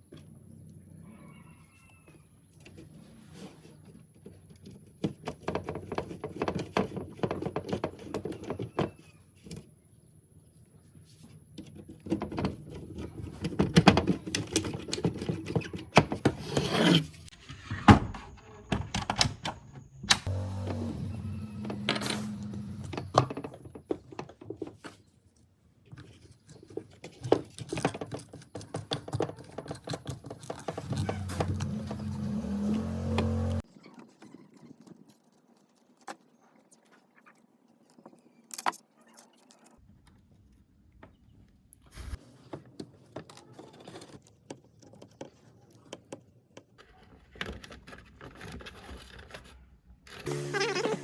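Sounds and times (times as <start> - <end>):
low motor hum: 20.3 - 23.3, 30.8 - 33.6, 50.3 - 51.0.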